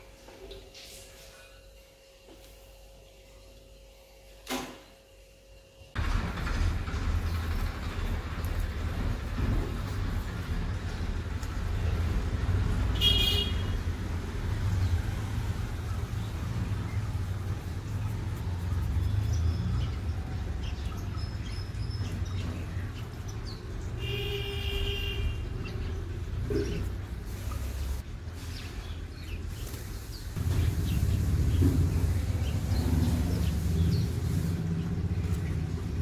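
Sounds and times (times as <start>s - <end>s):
vehicle horn toots: 12.9s - 13.9s, 24.0s - 25.6s.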